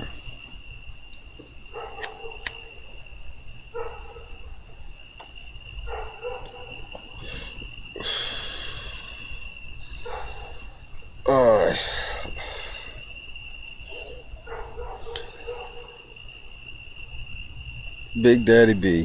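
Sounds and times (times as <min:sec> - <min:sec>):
crickets trilling: 0:00.0 - 0:19.0
sharp clicks: 0:02.0 - 0:02.9
hiss: 0:07.2 - 0:10.4.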